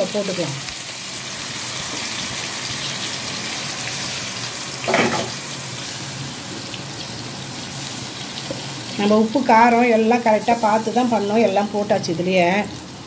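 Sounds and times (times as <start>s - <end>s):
oil sizzling: 0.0s - 13.0s.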